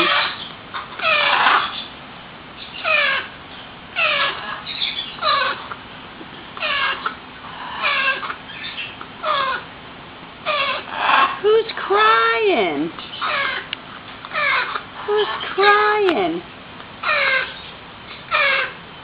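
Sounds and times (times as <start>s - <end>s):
baby parrot wailing calls: 0.0s - 1.9s, 2.6s - 5.8s, 6.6s - 9.7s, 10.4s - 12.3s, 13.0s - 13.7s, 14.3s - 16.0s, 17.0s - 18.8s.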